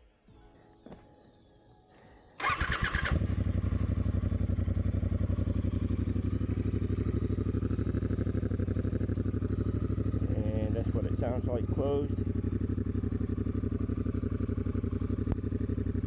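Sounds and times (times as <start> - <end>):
motorcycle engine idling: 2.0 - 16.0
starter motor cranking: 2.4 - 3.3.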